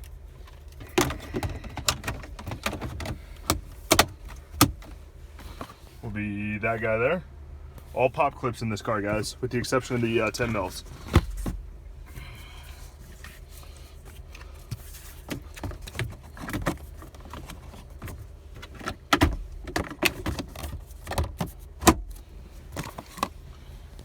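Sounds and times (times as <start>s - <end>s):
plastic trim clicks and knocks: 1.0s - 4.9s.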